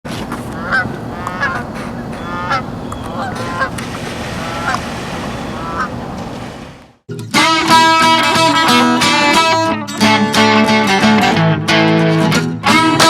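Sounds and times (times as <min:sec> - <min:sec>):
geese honking: 0:00.1 - 0:07.0.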